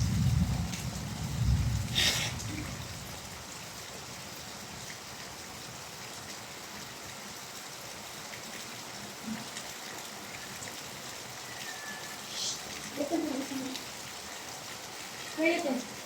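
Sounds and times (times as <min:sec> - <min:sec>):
raindrop ticks: 0:00.0 - 0:02.9
steady rain hiss: 0:00.0 - 0:16.0.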